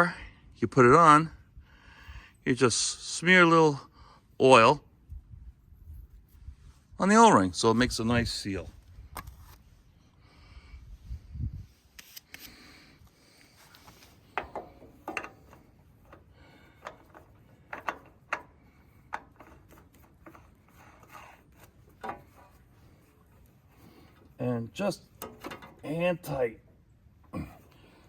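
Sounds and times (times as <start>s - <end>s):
oil filter clicks and scrapes: 8.9s - 9.7s, 11.9s - 24.4s, 25.0s - 26.0s.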